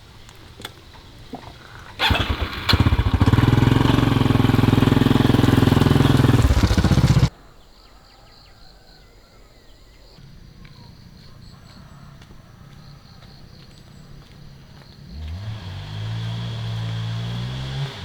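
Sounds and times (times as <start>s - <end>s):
motorbike engine starting and running: 1.0s - 7.3s, 15.1s - 18.0s.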